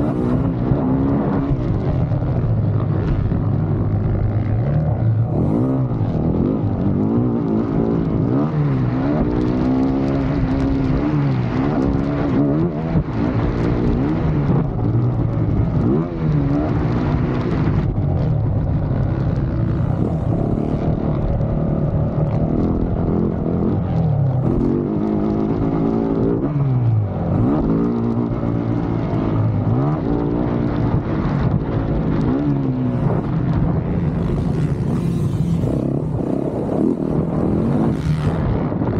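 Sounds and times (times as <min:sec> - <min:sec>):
dirt bike engine revving: 0:00.0 - 0:01.7, 0:03.6 - 0:14.6, 0:19.5 - 0:23.8, 0:32.1 - 0:38.8.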